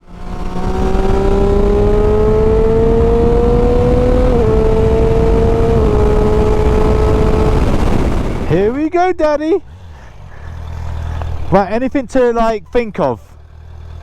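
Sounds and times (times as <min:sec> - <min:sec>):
motorcycle engine under load: 0:00.0 - 0:08.8, 0:09.6 - 0:14.0
wind rush: 0:02.6 - 0:08.8.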